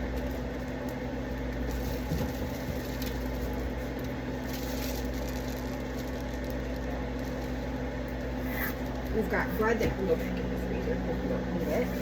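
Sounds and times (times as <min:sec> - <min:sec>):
food packages rustling: 0:00.0 - 0:09.1
electrical appliance hum: 0:00.0 - 0:12.0.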